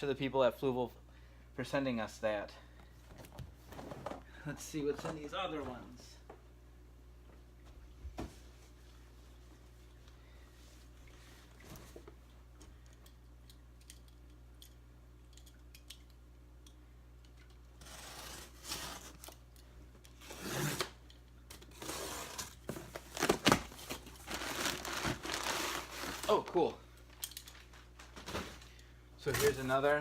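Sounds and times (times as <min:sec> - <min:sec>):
packing tape ripping: 0:17.8 - 0:19.4, 0:20.2 - 0:26.5
packing material rustling: 0:21.7 - 0:26.8.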